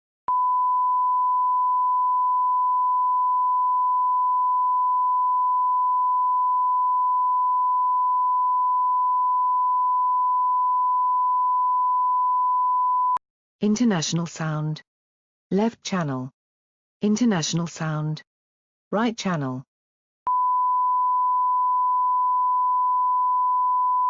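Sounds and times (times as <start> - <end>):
steady sine-wave tone: 0.3 - 13.2, 20.3 - 24.0.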